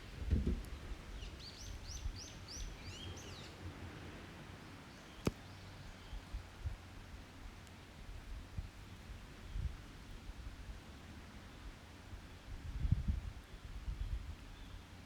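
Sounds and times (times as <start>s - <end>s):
songbird singing: 0.7s - 3.8s, 4.5s - 6.4s.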